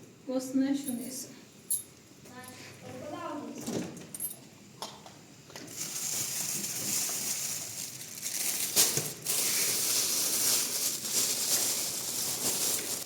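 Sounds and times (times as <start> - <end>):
rustling and crinkling: 5.5 - 13.0.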